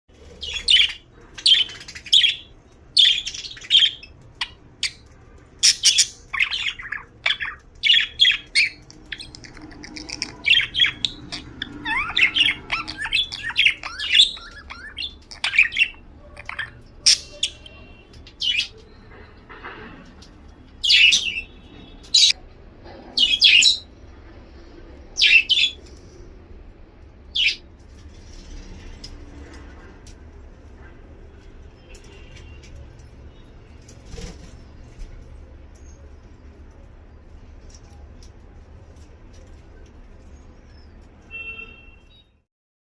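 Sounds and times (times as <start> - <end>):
budgies chirping and squawking: 0.2 - 18.8, 20.8 - 22.4, 25.2 - 25.9, 27.4 - 27.6
budgies chattering: 0.2 - 18.9, 25.2 - 25.8.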